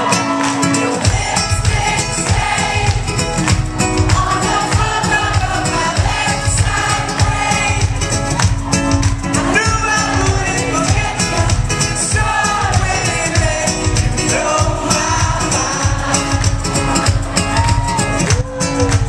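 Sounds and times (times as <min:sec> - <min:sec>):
pop-rock band playing: 0:00.0 - 0:19.0
man singing: 0:09.4 - 0:17.4.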